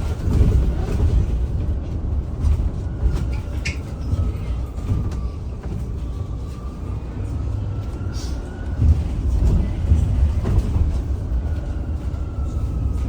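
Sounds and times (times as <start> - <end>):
road and tyre rumble: 0.0 - 13.0.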